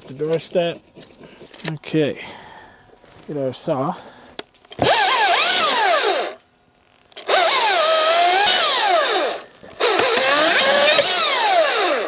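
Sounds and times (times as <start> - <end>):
electric saw cutting: 4.8 - 6.4, 7.2 - 12.0.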